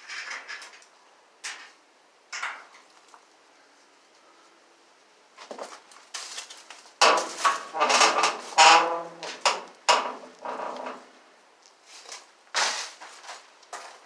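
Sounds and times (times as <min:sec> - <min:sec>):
metal objects clattering: 0:07.0 - 0:11.1.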